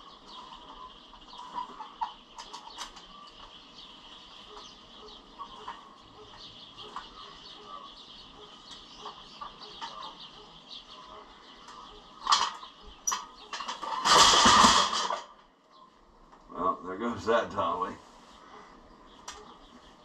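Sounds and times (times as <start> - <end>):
faint bird chirps: 0.0 - 14.0, 15.6 - 16.9, 17.6 - 20.0
dolly rattling scrape: 12.2 - 15.4.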